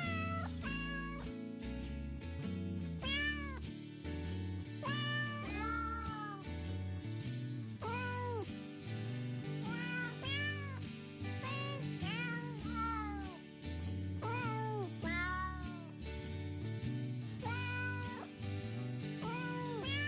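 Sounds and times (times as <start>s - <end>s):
cat meowing: 0.0s - 1.3s, 3.0s - 3.6s, 4.8s - 6.5s, 7.8s - 8.4s, 9.6s - 10.8s, 11.4s - 13.4s, 14.2s - 15.9s, 17.4s - 18.3s, 19.2s - 20.0s.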